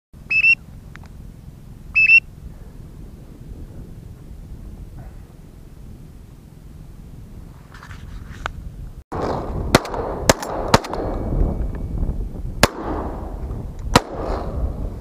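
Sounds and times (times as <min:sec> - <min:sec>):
shotgun shots: 0:09.1 - 0:11.2, 0:12.6 - 0:14.6.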